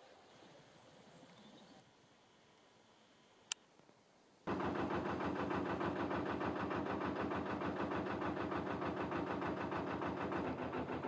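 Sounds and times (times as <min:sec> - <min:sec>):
diesel engine idling: 0:04.5 - 0:11.0.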